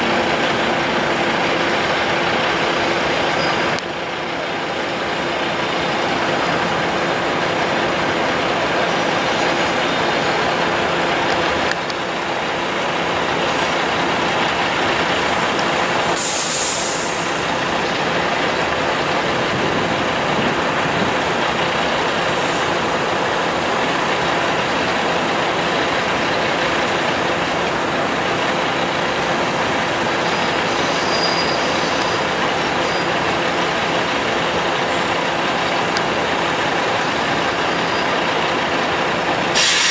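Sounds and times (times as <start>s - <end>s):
trucks rumbling along road: 0.0s - 39.9s
short high hiss: 16.1s - 17.4s, 39.5s - 39.9s.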